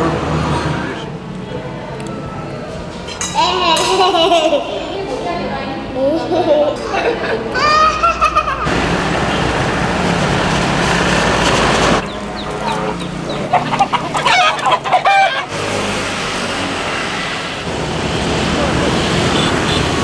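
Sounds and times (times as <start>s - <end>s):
car road noise: 0.0s - 20.0s
engine hum: 0.0s - 20.0s
chickens clucking: 12.0s - 16.0s.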